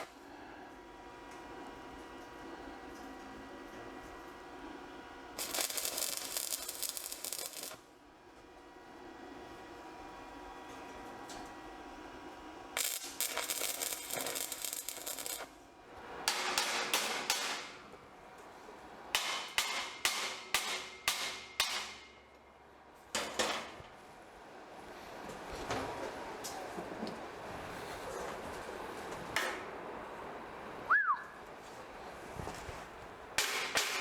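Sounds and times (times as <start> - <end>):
crackling: 5.4 - 7.8, 12.8 - 15.5
hammer striking metal: 16.2 - 17.8, 19.2 - 22.2, 33.4 - 34.0.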